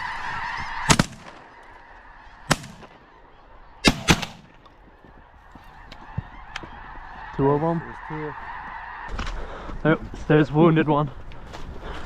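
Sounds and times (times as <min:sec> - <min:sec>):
snow geese honking: 0:00.0 - 0:09.7
shotgun blasts: 0:00.9 - 0:01.4, 0:02.5 - 0:03.0, 0:03.8 - 0:04.6.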